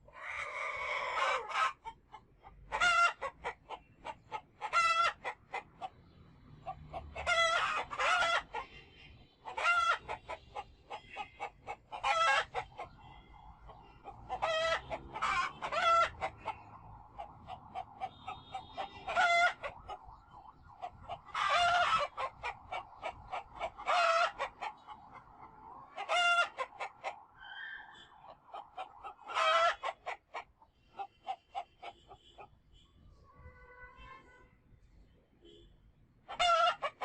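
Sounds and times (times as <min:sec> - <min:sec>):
chickens clucking: 0:00.0 - 0:32.6, 0:36.3 - 0:37.0
roosters crowing: 0:00.1 - 0:01.8, 0:06.6 - 0:08.6, 0:11.1 - 0:30.4.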